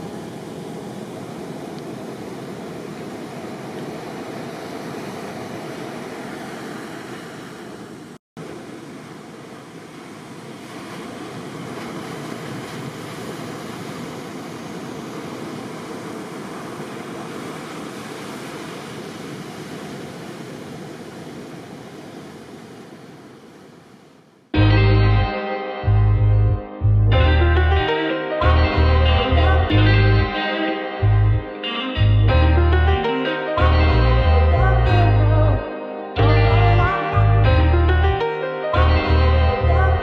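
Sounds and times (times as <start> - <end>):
ocean surf washing: 0.0 - 24.6, 29.9 - 32.0, 33.0 - 33.9.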